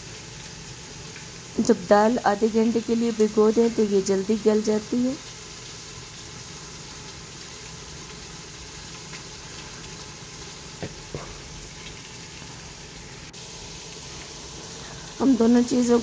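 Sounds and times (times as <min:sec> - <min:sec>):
masala sizzling in oil: 0:00.0 - 0:16.0.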